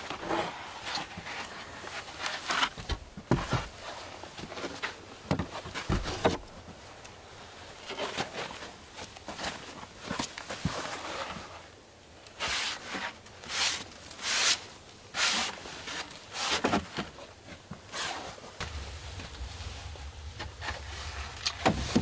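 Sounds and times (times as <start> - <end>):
low steady rumble: 18.6 - 22.0.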